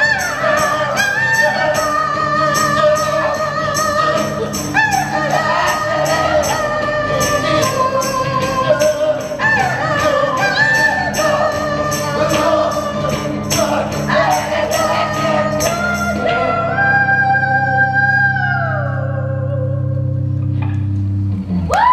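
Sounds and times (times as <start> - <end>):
tambourine beat: 0.0 - 16.5
person singing folk song: 0.0 - 20.2.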